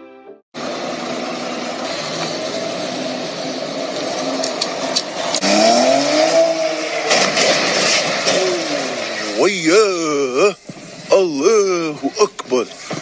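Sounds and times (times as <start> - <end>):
car engine accelerating: 0.6 - 11.1
road and wind noise: 0.6 - 13.0.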